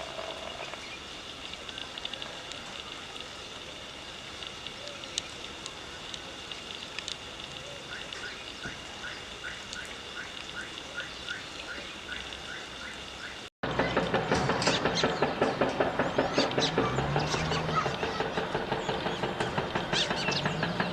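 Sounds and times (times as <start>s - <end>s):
wild bird calls: 7.6s - 20.9s.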